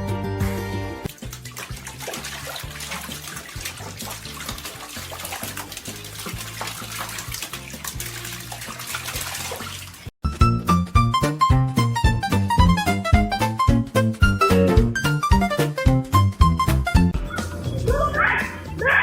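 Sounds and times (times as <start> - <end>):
quiet background music: 0.0 - 9.8
water running and splashing: 1.1 - 10.2.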